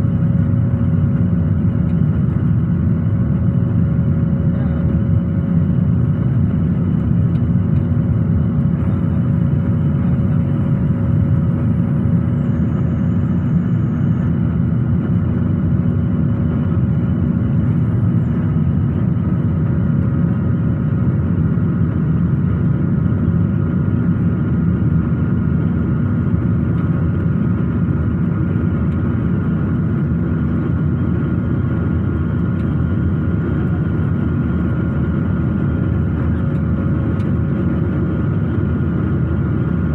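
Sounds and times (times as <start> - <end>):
airliner cabin engine rumble: 0.0 - 39.9
faint whining tones: 8.9 - 15.2.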